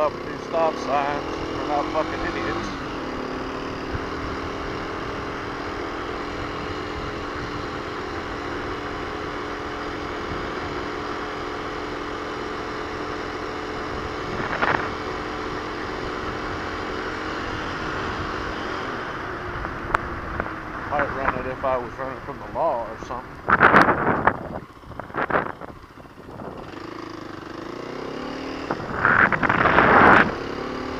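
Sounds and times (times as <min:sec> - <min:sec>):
motorcycle engine running: 0:00.0 - 0:30.9
wind rumble on microphone: 0:06.4 - 0:07.9, 0:13.8 - 0:15.1, 0:19.4 - 0:26.8, 0:28.6 - 0:30.6.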